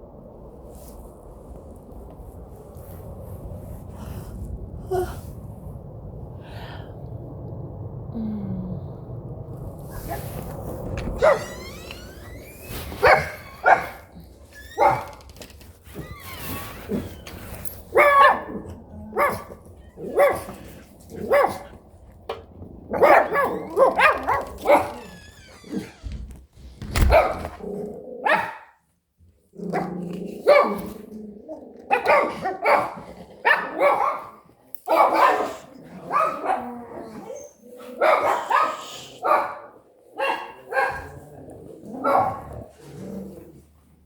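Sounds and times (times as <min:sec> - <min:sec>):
dogs barking: 0:13.0 - 0:14.1, 0:17.9 - 0:21.9, 0:22.9 - 0:25.0, 0:28.2 - 0:28.7, 0:29.8 - 0:30.9, 0:31.9 - 0:41.2, 0:42.0 - 0:42.7.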